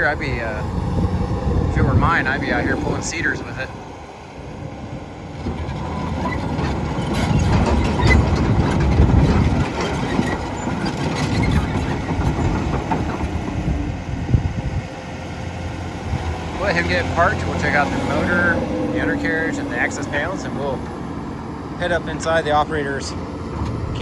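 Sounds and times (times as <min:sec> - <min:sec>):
excavator diesel engine working: 0:00.0 - 0:24.0
metallic clanks and knocks: 0:05.4 - 0:13.7.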